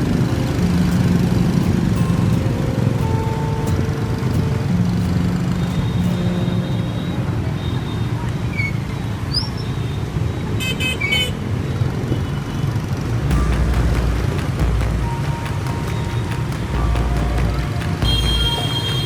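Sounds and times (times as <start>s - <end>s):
motorbike traffic rumble: 0.0s - 19.0s
vehicle horn toots: 13.3s - 19.0s.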